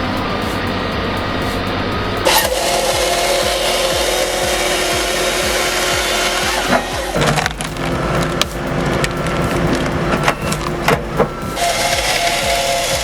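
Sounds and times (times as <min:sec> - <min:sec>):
motor running: 0:00.0 - 0:13.0
powered saw cutting wood: 0:00.0 - 0:13.0
wood splintering and cracking: 0:02.3 - 0:13.0.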